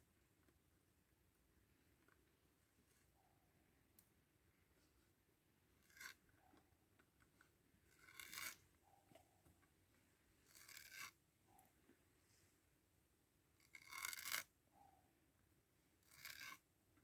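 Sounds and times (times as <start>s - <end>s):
faint scraping strokes: 10.0s - 12.7s.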